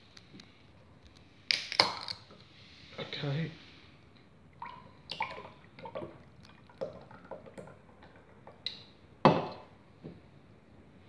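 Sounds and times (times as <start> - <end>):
drink can opening crack: 1.5 - 2.2.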